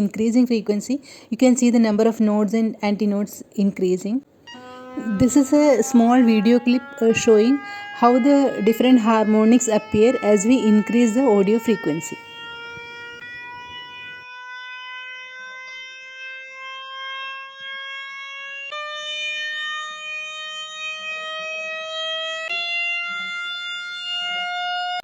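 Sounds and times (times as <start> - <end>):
signal generator tone rising in pitch: 4.4 - 19.0.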